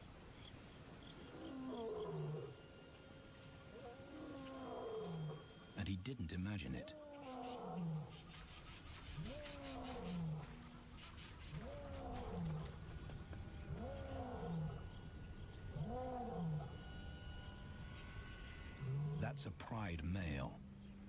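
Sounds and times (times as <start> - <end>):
lion roaring: 1.2 - 2.6, 3.7 - 5.5, 6.8 - 8.2, 9.2 - 10.8, 11.5 - 13.0, 13.6 - 15.0, 15.7 - 16.8, 18.8 - 19.2.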